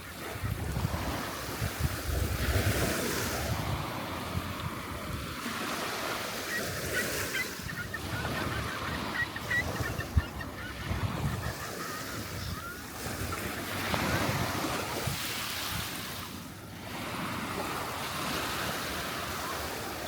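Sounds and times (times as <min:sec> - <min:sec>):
surf washing on beach: 0:00.0 - 0:20.0
wind buffeting microphone: 0:00.3 - 0:05.4, 0:07.6 - 0:16.0
faint bird calls: 0:06.4 - 0:13.7.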